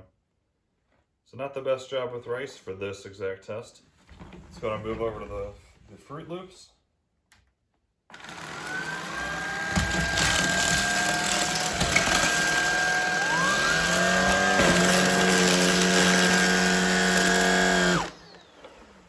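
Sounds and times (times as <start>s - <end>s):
cordless vacuum running: 8.1s - 19.0s.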